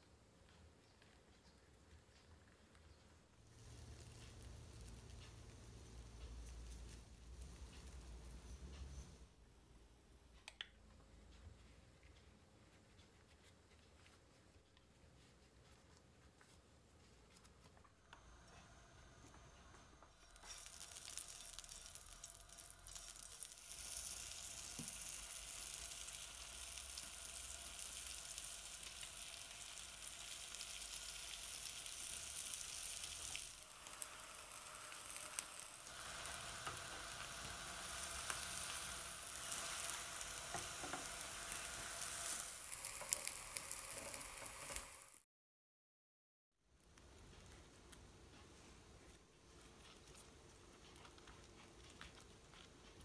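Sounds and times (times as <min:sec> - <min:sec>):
oil sizzling in a pan: 0:03.4 - 0:09.2, 0:18.2 - 0:45.2.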